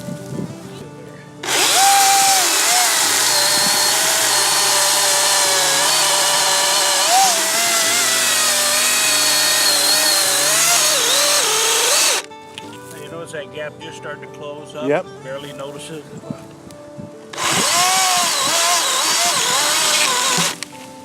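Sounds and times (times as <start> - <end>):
chainsaw cutting log: 1.4 - 12.3, 17.3 - 20.7.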